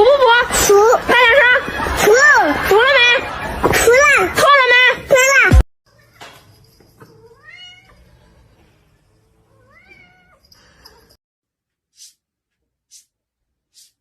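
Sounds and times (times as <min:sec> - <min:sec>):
cat meowing: 0:07.0 - 0:08.0, 0:09.5 - 0:10.4
short hissy noises: 0:12.0 - 0:12.2, 0:13.7 - 0:14.0.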